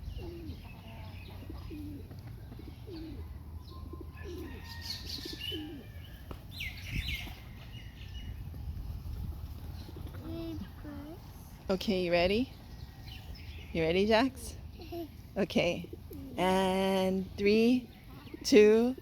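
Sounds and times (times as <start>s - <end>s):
pigeons cooing: 0.0s - 7.2s, 9.6s - 11.3s, 14.1s - 19.0s.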